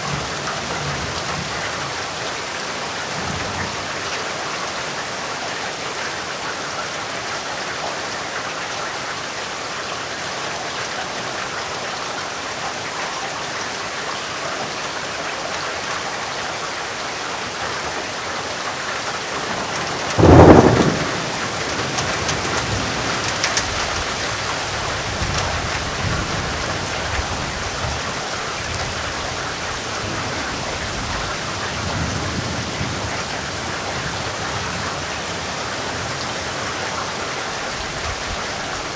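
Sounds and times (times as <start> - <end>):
steady rain falling: 0.0 - 38.9
thunderclap and rolling thunder: 19.4 - 28.0.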